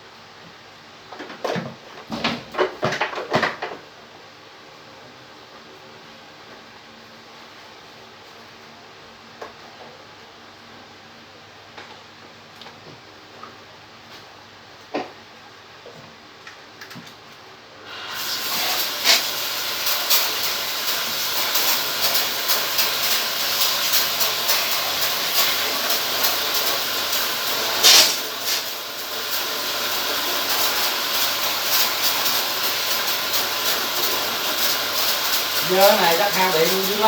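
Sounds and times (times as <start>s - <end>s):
pressurized water spray hissing: 17.9s - 37.0s.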